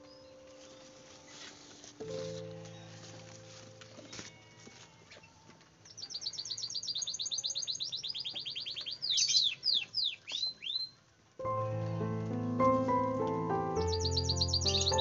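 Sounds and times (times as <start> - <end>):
songbird trilling and whistling: 6.0 - 11.0, 13.8 - 15.0.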